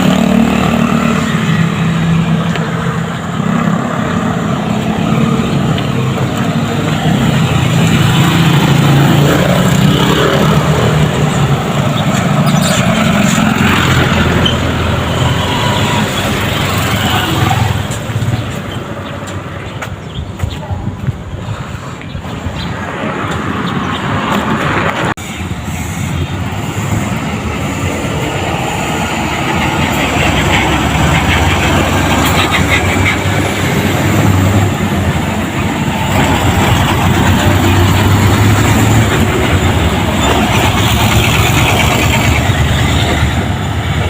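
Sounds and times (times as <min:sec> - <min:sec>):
road noise: 0:00.0 - 0:44.0
diesel truck engine running: 0:25.4 - 0:44.0.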